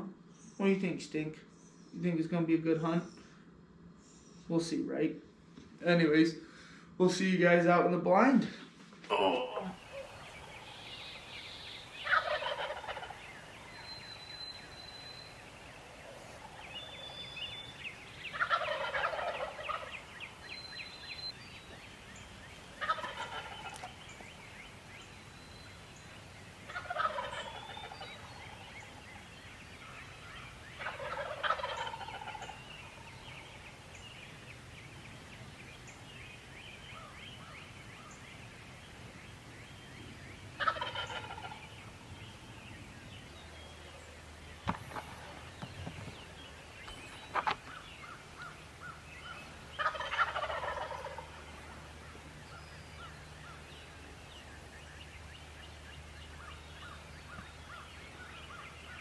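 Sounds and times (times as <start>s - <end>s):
turkey gobbling: 9.6s - 15.4s, 16.0s - 21.8s, 22.5s - 24.2s, 26.1s - 33.7s, 40.6s - 41.9s, 47.3s - 54.4s
faint whistled bird notes: 13.4s - 18.8s.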